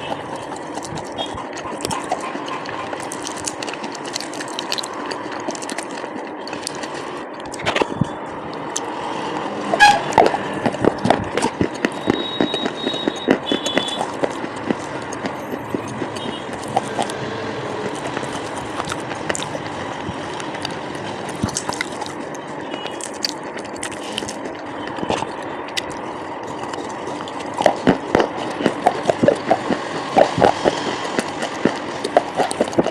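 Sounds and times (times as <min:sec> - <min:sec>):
crunchy chewing: 0:00.0 - 0:32.9.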